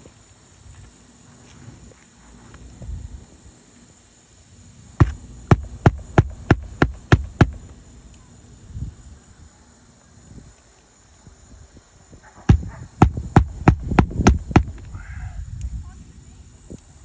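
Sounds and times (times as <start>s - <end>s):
hammer striking nail into shingle: 5.0s - 7.6s, 12.5s - 14.8s.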